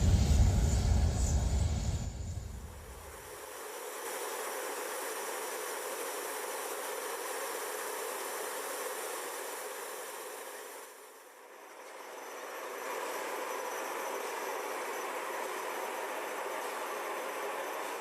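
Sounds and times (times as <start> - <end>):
turbine engines hissing: 0.0 - 3.2.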